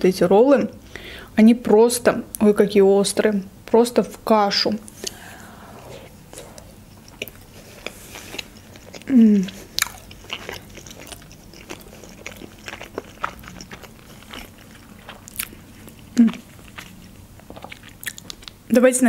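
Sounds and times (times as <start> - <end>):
chewing with wet mouth clicks: 6.3 - 18.6.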